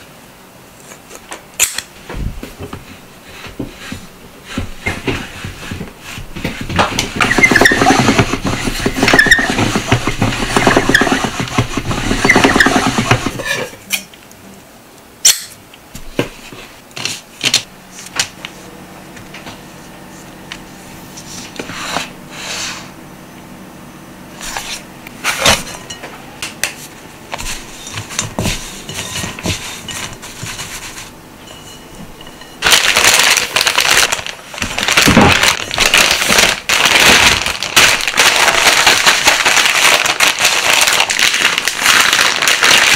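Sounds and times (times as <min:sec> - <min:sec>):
noodle machine rollers clattering: 0:04.7 - 0:13.8
plastic bag crinkling: 0:06.9 - 0:13.4, 0:32.6 - 0:42.9.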